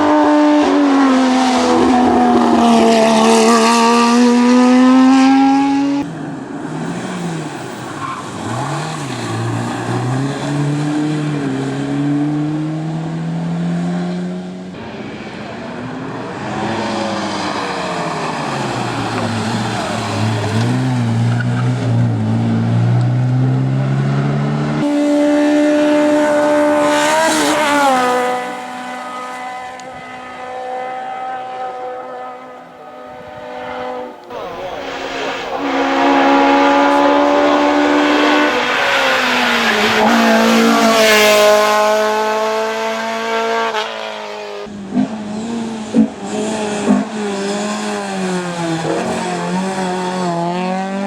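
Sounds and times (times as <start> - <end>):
race car engines revving: 0.0 - 51.0
race car passing by: 0.0 - 51.0.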